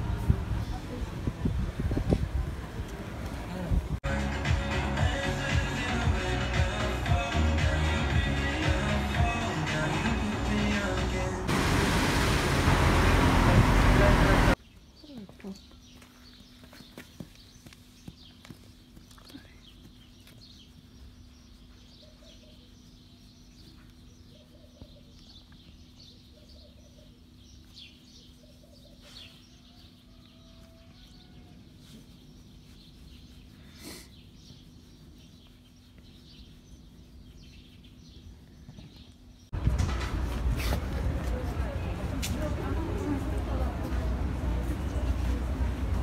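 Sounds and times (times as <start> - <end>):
small birds chirping: 14.5 - 39.6.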